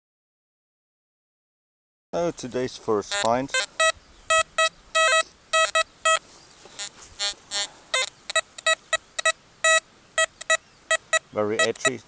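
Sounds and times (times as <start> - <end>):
metal detector beeps: 3.1 - 6.2, 6.8 - 12.0.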